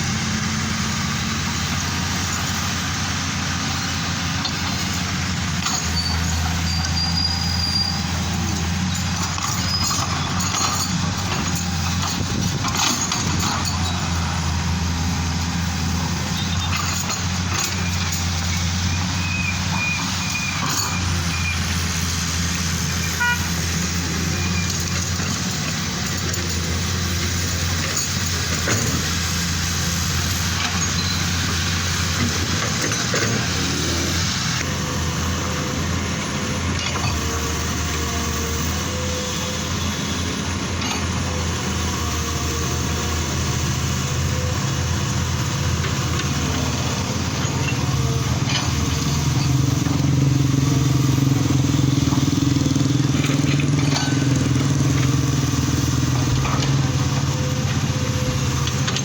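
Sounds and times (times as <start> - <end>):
heavy vehicle engines droning: 0.0 - 59.0.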